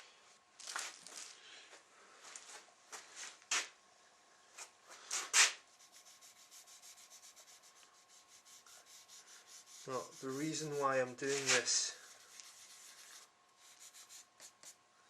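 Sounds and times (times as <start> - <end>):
quick back-and-forth rubbing: 5.1 - 14.8
scraping strokes on steel: 5.3 - 14.8.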